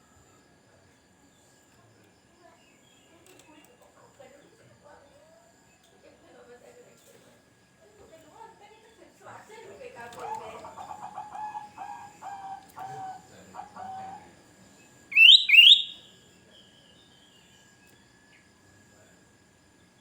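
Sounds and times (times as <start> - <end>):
bird whistling notes: 15.1 - 16.0
repeated bird calls: 15.1 - 16.1.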